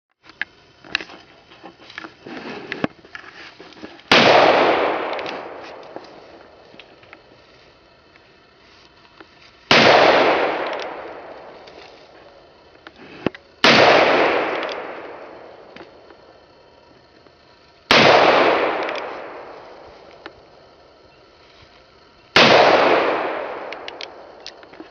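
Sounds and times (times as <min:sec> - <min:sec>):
rolling echo: 0:04.1 - 0:07.3, 0:09.7 - 0:12.9, 0:13.6 - 0:16.5, 0:17.9 - 0:20.8, 0:22.3 - 0:24.9.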